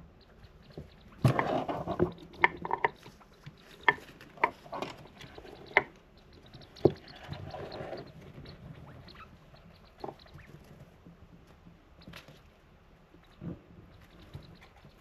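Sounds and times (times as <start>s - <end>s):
degu scrabbling: 0.5s - 10.8s.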